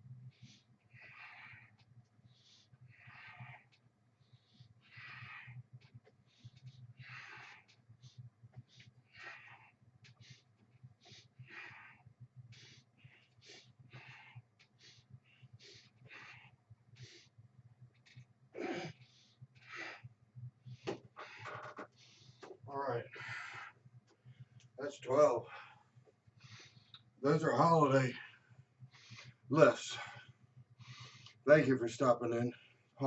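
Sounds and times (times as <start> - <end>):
person breathing: 25.4 - 27.0, 28.1 - 31.4.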